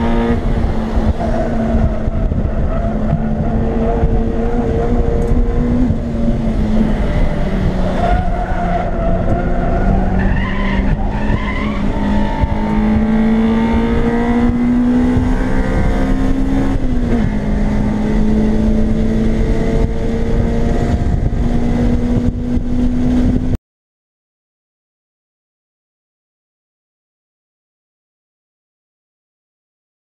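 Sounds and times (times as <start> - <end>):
car engine accelerating: 0.0 - 23.6
road and wind noise: 0.0 - 23.6.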